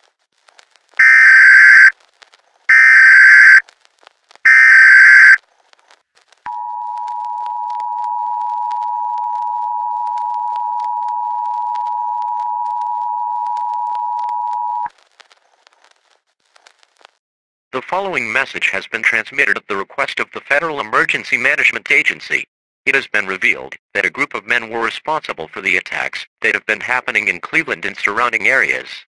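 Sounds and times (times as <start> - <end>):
data bursts: 1.0 - 1.9, 2.7 - 3.6, 4.5 - 5.4.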